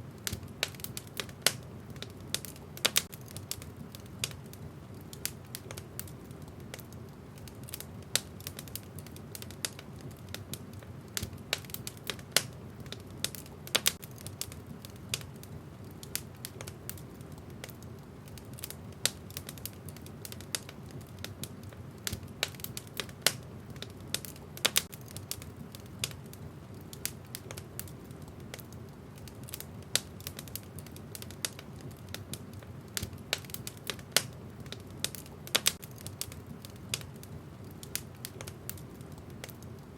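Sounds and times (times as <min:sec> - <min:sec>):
logs crackling and popping: 0:00.0 - 0:39.9
low rush of flames: 0:00.0 - 0:39.9.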